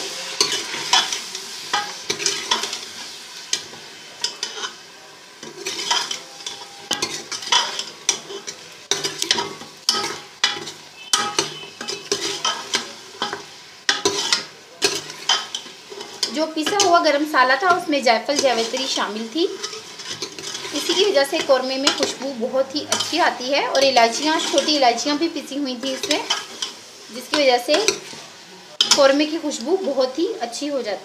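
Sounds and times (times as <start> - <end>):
meat sizzling in a pot: 0.0 - 31.0
spoon scraping a pot: 3.5 - 4.8, 5.4 - 17.0, 17.7 - 25.1, 25.8 - 29.2.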